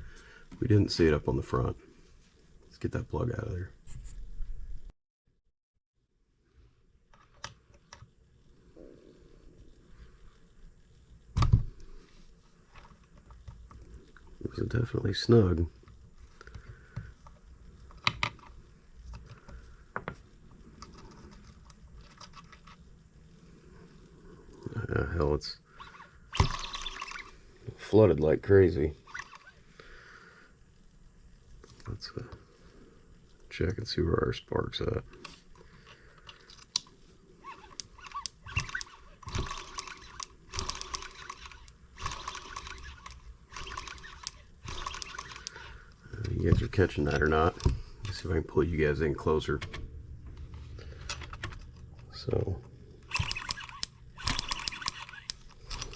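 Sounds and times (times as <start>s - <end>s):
small scattered ticks: 28.5s - 48.4s, 50.8s - 55.9s
sharp metallic clicks: 37.7s - 45.7s, 53.0s - 55.9s.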